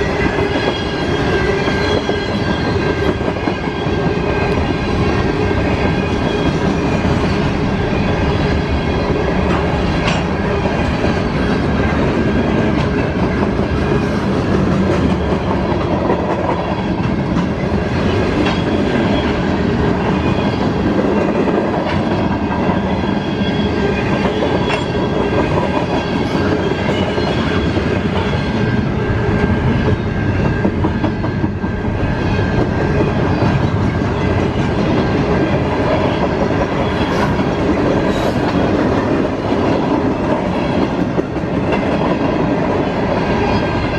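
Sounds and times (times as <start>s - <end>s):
high wheel squeal: 0.0s - 9.8s, 22.8s - 28.9s
train wheels clattering over rail joints: 0.1s - 28.6s.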